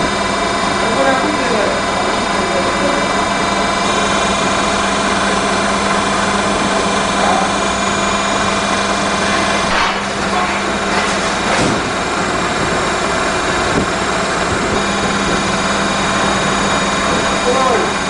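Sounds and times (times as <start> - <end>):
rip saw machine running: 0.0 - 18.0.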